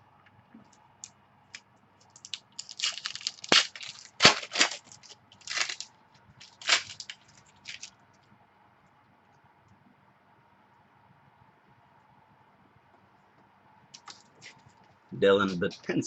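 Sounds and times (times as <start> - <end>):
card wrappers crinkling and tearing: 2.0 - 7.9.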